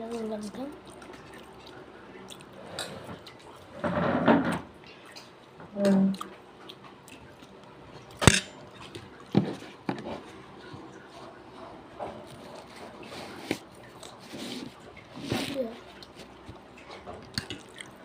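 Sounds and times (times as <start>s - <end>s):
rustling scrape: 12.2s - 16.3s.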